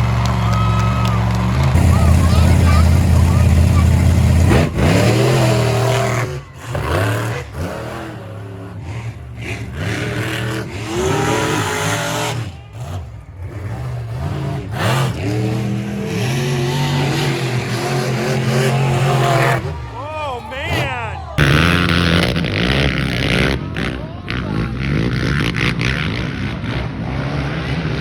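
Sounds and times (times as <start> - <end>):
racing engines revving: 0.0 - 28.0.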